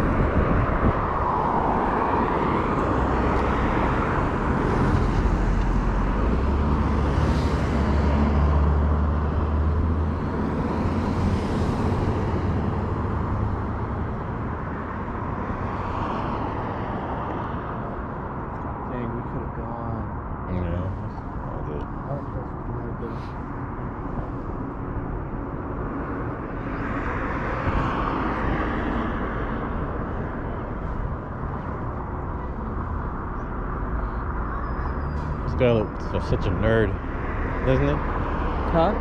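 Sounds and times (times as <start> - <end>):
wind on microphone: 0.0 - 3.2.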